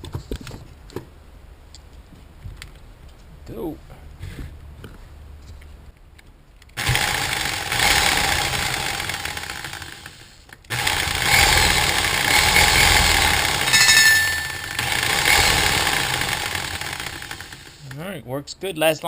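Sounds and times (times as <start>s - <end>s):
reciprocating saw motor running: 6.8s - 13.8s, 14.6s - 17.8s.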